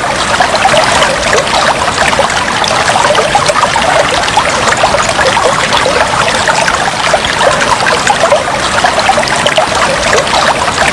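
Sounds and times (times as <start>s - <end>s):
aquarium water bubbling: 0.0s - 10.9s.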